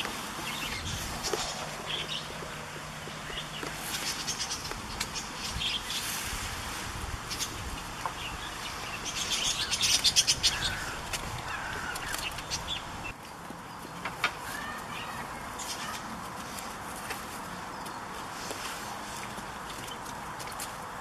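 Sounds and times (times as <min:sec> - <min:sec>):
birds chirping: 0:00.0 - 0:06.3, 0:07.2 - 0:16.2
rapid bird chatter: 0:00.0 - 0:06.3, 0:07.2 - 0:16.7.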